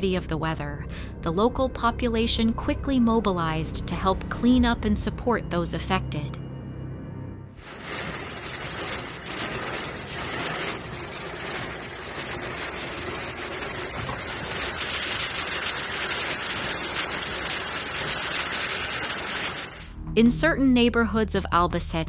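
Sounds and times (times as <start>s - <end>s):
heavy rain falling: 7.6s - 19.9s.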